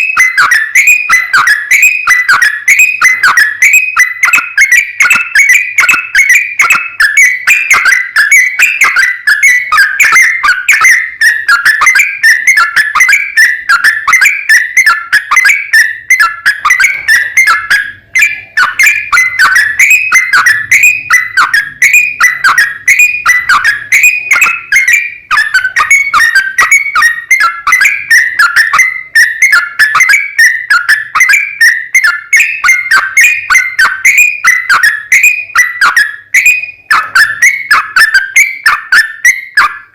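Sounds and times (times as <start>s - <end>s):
bulbul singing chattering whistles: 0.0s - 39.9s.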